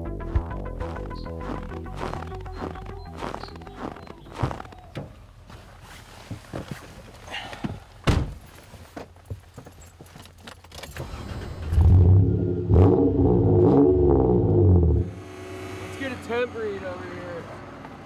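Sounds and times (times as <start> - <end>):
engine cranking and starting: 10.7 - 12.3.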